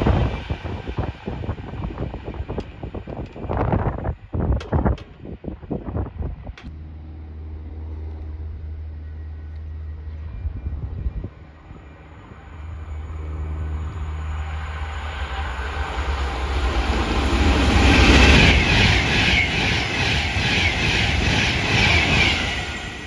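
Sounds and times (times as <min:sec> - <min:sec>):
wheels clattering on rails: 0:00.0 - 0:06.7
train rumbling past: 0:00.0 - 0:23.0.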